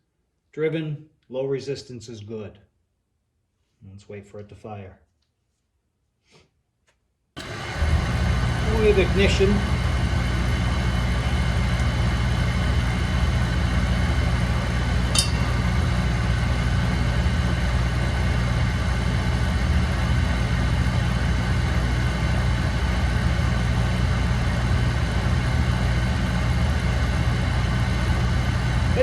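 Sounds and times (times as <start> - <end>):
oil burner humming: 7.4 - 29.0.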